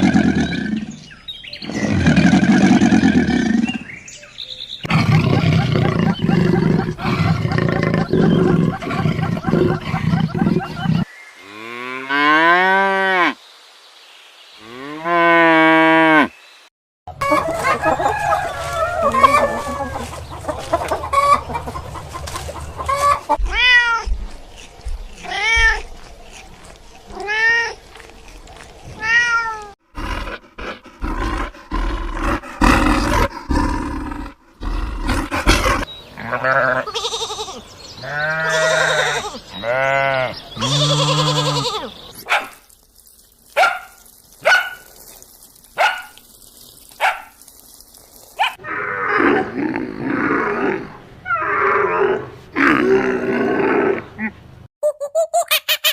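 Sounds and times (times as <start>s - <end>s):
rising-and-falling calls: 17.2s - 23.4s.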